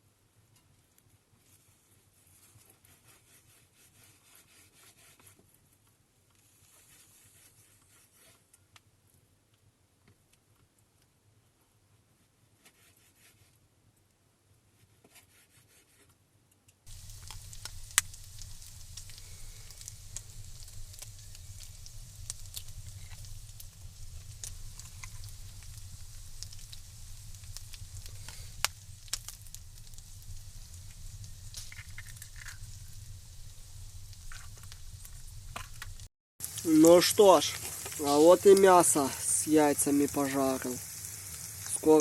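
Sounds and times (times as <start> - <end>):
fat spattering pops: 16.9 - 33.3
food sizzling in a pan: 16.9 - 42.0.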